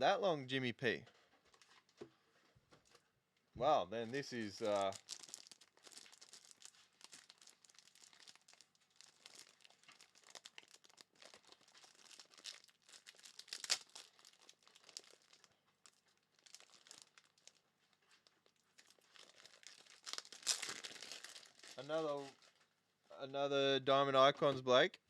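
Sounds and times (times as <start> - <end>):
plastic wrappers crinkling: 4.0 - 22.8.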